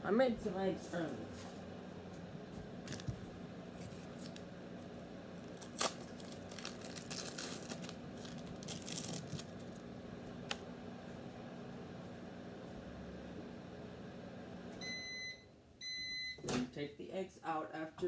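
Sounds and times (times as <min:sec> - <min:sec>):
steady low hum: 0:00.0 - 0:16.2
plastic packaging crinkling: 0:02.9 - 0:03.2, 0:03.8 - 0:09.9.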